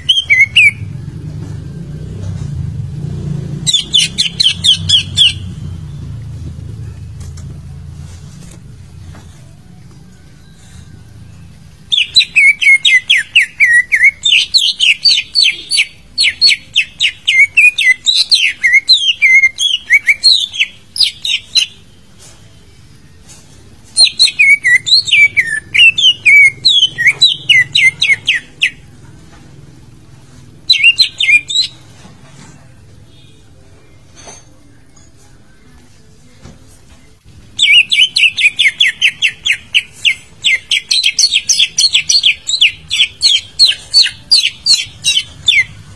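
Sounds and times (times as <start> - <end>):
bird singing whistled notes: 0.0 - 1.0, 3.7 - 6.2, 9.9 - 21.8, 24.0 - 28.9, 30.7 - 31.8, 37.6 - 45.9.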